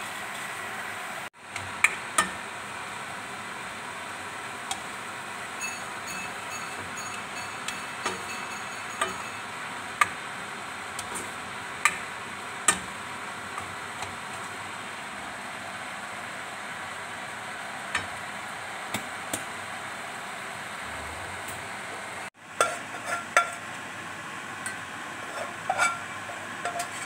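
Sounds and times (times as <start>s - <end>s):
food sizzling in a wok: 0.0s - 20.8s
steel spoon knocking on pan: 5.6s - 9.4s.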